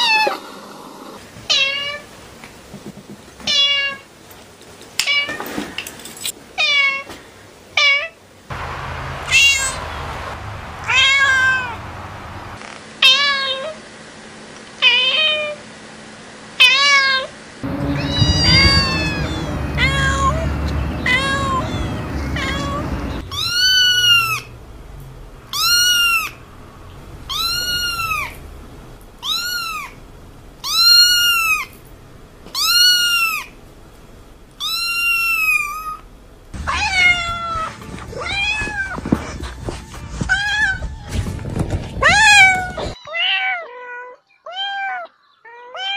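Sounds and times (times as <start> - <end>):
low rumble: 8.5 - 12.6, 17.6 - 34.6
cat meowing: 16.7 - 24.5, 25.5 - 26.4, 27.2 - 28.4, 29.2 - 30.0, 30.6 - 31.7, 32.5 - 33.5, 34.6 - 36.0, 36.6 - 39.0
high-pitched kitten meows: 25.5 - 26.4, 27.3 - 28.4, 29.2 - 30.0, 32.6 - 33.5, 34.6 - 36.0, 42.0 - 45.9.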